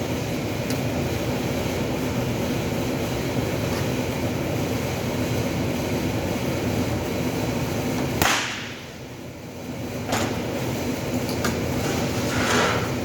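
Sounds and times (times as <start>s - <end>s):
workshop machine drone: 0.0s - 13.0s
stud welder cracks: 8.2s - 8.8s.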